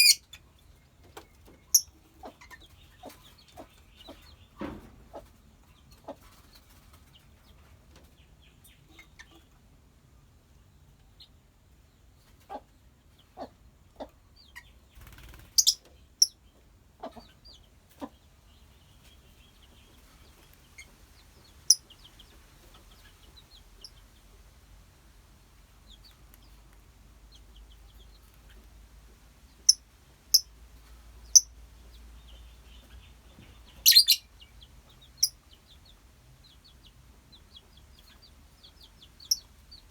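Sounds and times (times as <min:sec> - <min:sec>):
shrill bird chirps: 0:00.0 - 0:00.2, 0:15.6 - 0:15.8, 0:33.7 - 0:34.3
birds chattering: 0:00.0 - 0:09.6, 0:12.2 - 0:24.4, 0:31.2 - 0:39.9.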